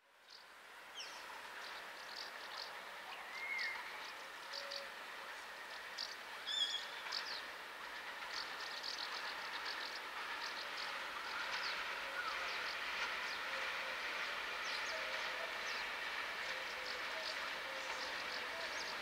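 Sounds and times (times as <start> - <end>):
distant diesel freight train: 0.0 - 19.0
bird whistled glide: 2.2 - 4.9, 6.0 - 7.4.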